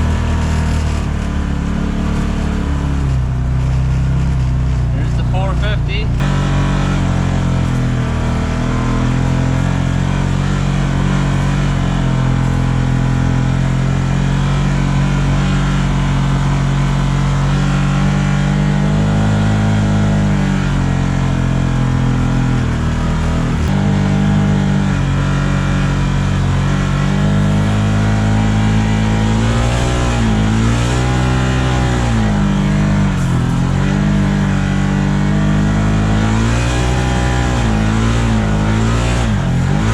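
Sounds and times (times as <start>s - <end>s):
vehicle engine running hard: 0.0s - 39.9s.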